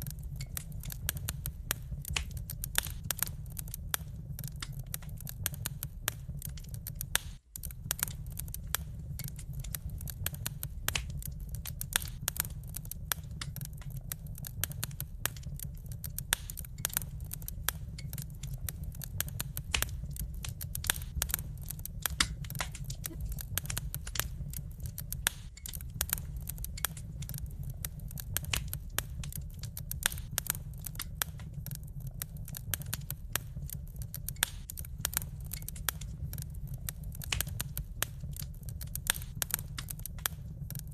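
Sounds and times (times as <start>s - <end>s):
low rumble: 0.0s - 40.9s
wood fire crackling: 0.0s - 40.9s
sharp pops: 7.1s - 14.0s, 14.6s - 27.4s.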